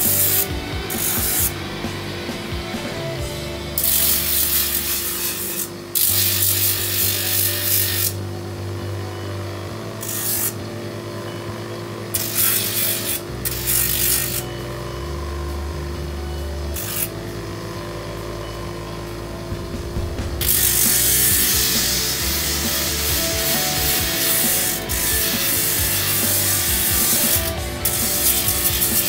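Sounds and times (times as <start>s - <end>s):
wood rasping against sander: 0.0s - 3.0s, 19.7s - 29.0s
sanding drum running: 0.0s - 8.8s, 16.8s - 29.0s.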